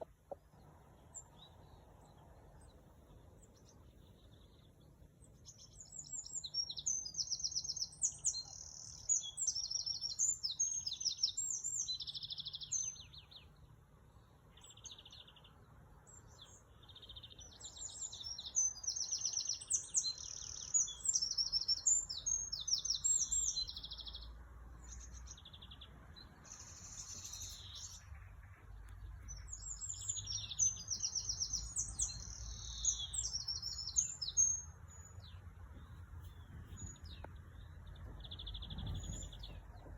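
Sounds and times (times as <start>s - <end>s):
bird chirps: 14.5s - 39.9s.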